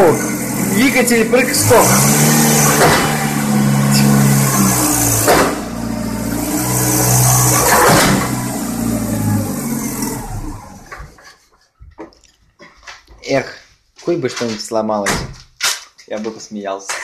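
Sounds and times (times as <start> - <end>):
car engine revving: 0.0 - 11.2
sharp knocks: 2.6 - 3.3, 4.1 - 5.6, 7.6 - 8.4.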